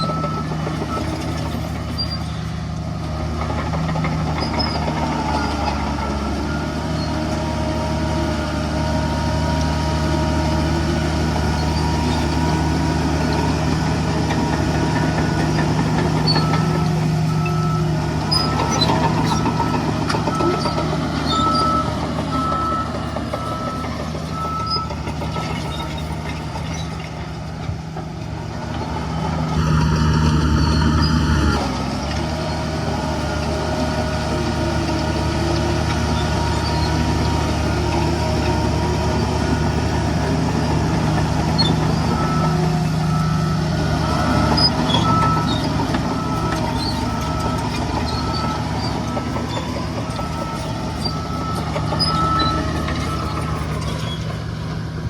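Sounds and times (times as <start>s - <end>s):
reversing alarm beeping: 0.0s - 1.2s, 11.6s - 25.8s, 29.6s - 31.8s, 41.4s - 54.8s
heavy diesel machinery running: 0.0s - 55.0s
loud held tone: 29.6s - 31.6s.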